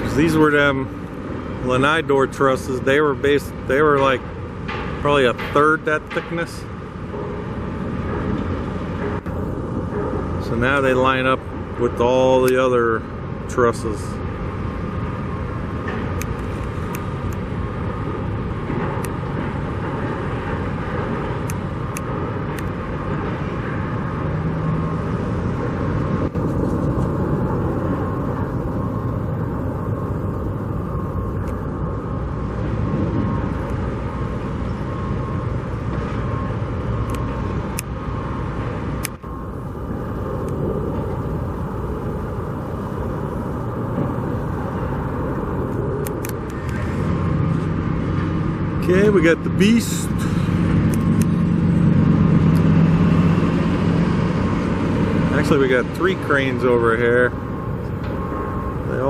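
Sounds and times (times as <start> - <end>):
cars passing: 0.0 - 59.0.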